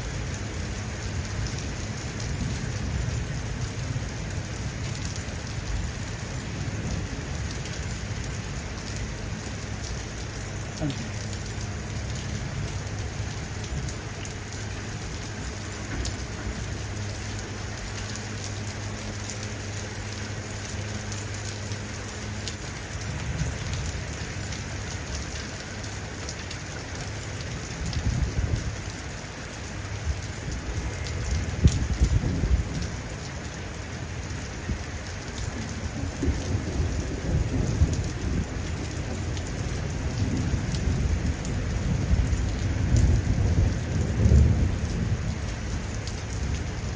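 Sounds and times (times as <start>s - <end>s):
steady rain falling: 0.0s - 46.9s
thunder rumbling: 29.9s - 46.9s.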